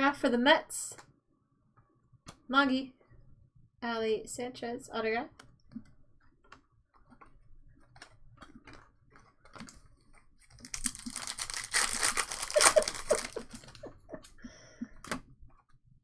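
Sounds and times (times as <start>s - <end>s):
foil wrapper crinkling: 10.4s - 13.8s.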